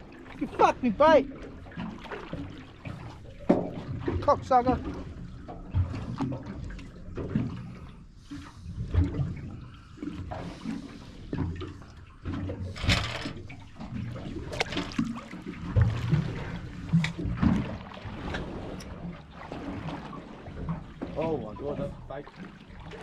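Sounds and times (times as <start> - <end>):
water slapping against boat hull: 0.0 - 23.0
sharp splashes: 12.7 - 23.0.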